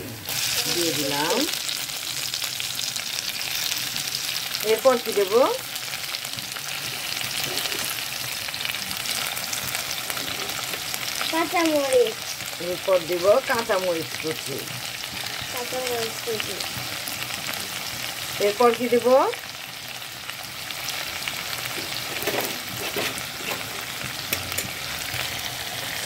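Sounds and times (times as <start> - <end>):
vegetables sizzling in a pan: 0.0 - 26.0.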